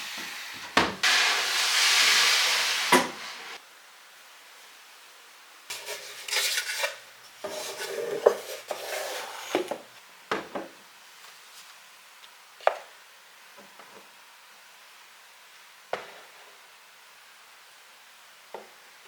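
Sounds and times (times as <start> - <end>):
objects rubbing and scraping: 5.7 - 9.8.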